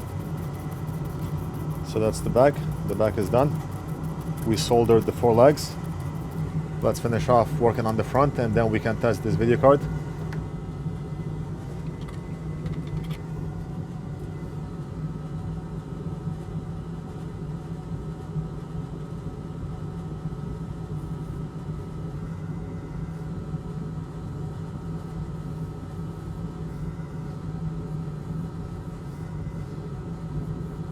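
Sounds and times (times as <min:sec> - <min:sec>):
electric fan humming: 0:00.0 - 0:15.7.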